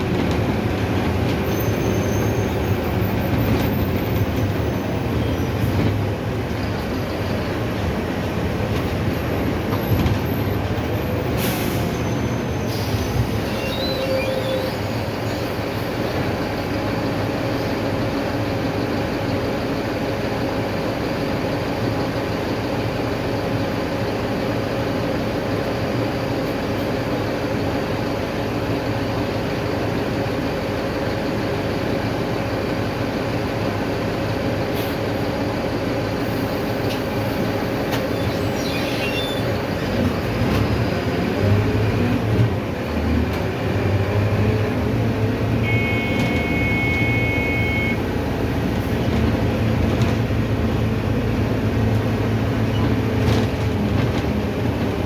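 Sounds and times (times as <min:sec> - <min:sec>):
bus engine running: 0:00.0 - 0:55.0
road noise: 0:00.0 - 0:55.0
body squeaks and rattles: 0:37.9 - 0:40.0.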